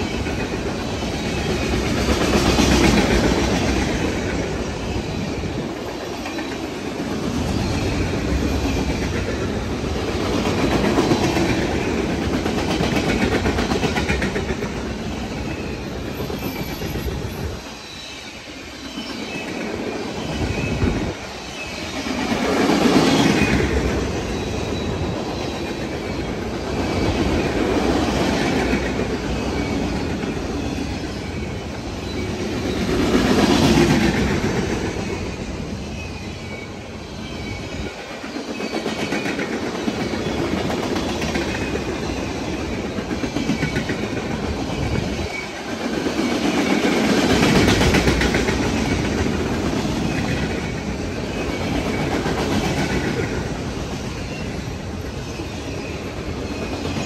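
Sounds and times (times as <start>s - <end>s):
freight train rumble: 0.0s - 57.0s
wheels clacking over rail joints: 37.5s - 57.0s.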